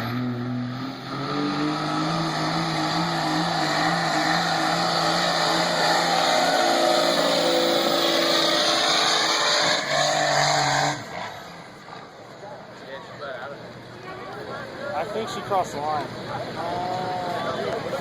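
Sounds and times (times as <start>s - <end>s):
diesel engine at high revs: 0.0s - 12.1s.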